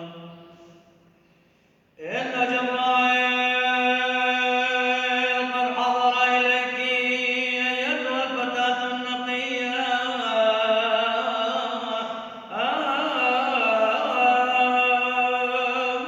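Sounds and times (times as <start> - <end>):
man chanting a hymn: 0.0 - 0.9, 2.0 - 16.0.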